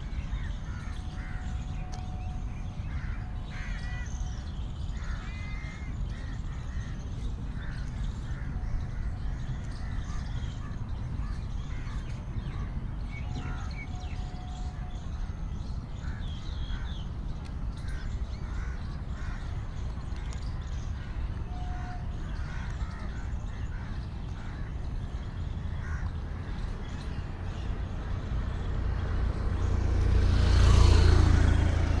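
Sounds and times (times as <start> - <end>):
crows cawing: 2.9 - 4.2, 5.0 - 7.0, 22.3 - 24.8, 25.7 - 26.6.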